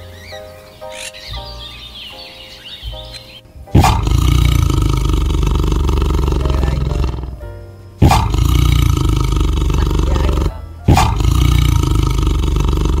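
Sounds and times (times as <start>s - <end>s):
soft music with steady notes: 0.0s - 13.0s
deep animal roar: 3.7s - 7.4s, 8.0s - 13.0s.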